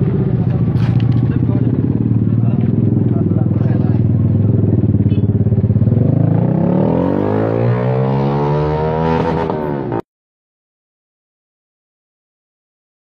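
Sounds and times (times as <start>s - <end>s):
vehicle engine accelerating: 0.0s - 10.0s.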